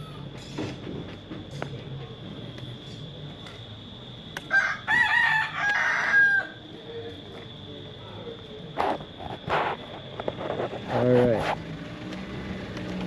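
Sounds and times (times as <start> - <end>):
rooster crowing: 4.5 - 6.7.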